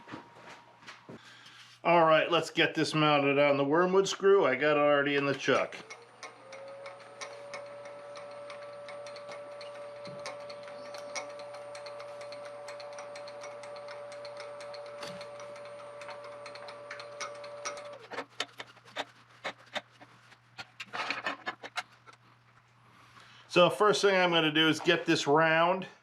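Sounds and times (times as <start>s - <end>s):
wood lathe whining: 3.2s - 20.1s
rapid irregular ticking: 5.4s - 22.2s.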